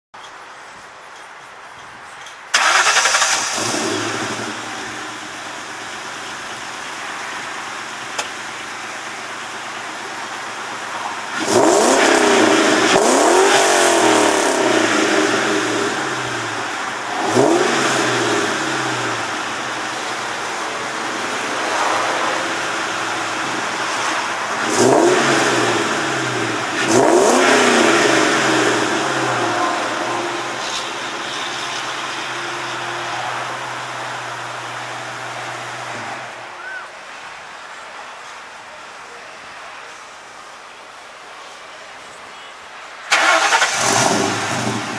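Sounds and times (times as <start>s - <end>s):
car engine starting and revving: 2.5s - 36.2s, 43.1s - 44.9s.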